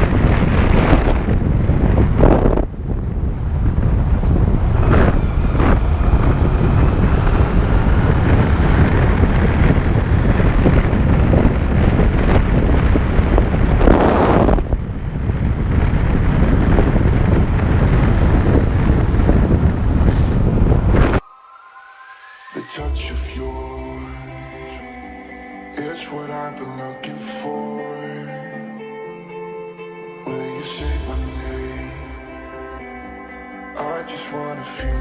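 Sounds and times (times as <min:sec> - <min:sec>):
wind buffeting microphone: 0:00.0 - 0:21.3.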